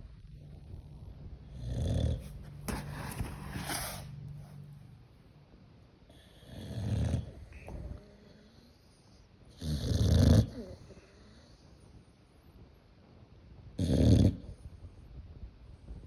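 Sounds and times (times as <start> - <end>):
dog snoring: 0.3 - 2.9, 6.1 - 11.6, 13.8 - 14.7.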